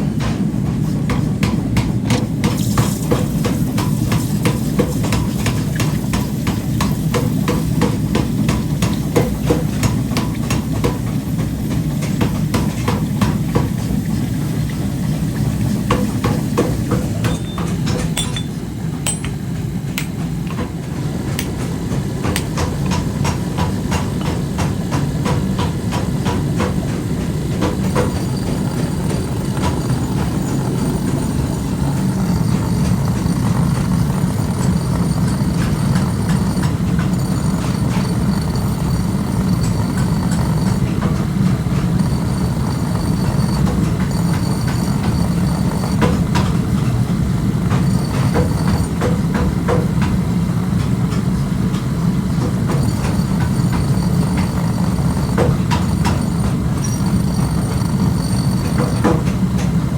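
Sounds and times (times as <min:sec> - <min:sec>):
metallic clicks and knocks: 0:17.2 - 0:20.6
machinery low rumble: 0:27.1 - 0:48.9.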